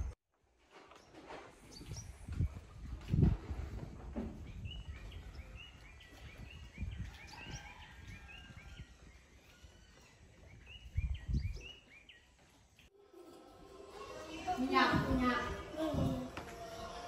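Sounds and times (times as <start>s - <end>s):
small birds chirping: 1.0s - 3.2s, 4.1s - 12.9s.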